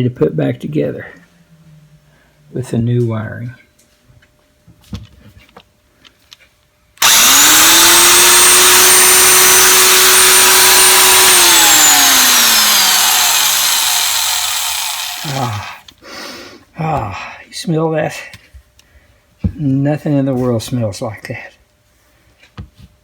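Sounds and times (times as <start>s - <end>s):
electric drill motor whine: 7.0s - 15.8s.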